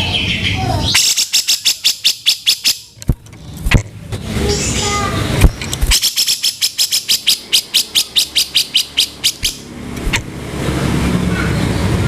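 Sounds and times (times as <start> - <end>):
bird giving harsh rough notes: 4.5 - 10.3.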